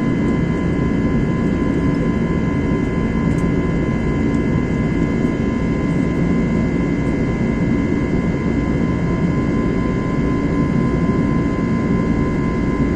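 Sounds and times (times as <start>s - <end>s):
high engine whine: 0.0s - 12.9s
jet engines rumbling in cabin: 0.0s - 12.9s.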